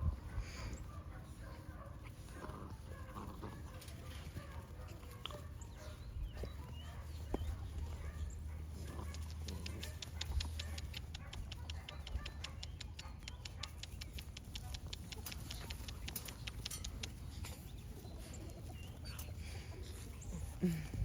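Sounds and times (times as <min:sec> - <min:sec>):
puppies moving about: 0:00.0 - 0:21.0
quick sharp clicks: 0:09.0 - 0:17.3.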